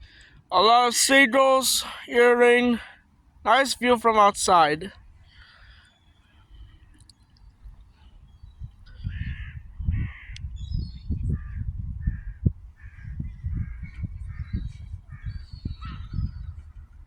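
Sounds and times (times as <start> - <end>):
low rumbling on microphone: 7.7 - 17.0.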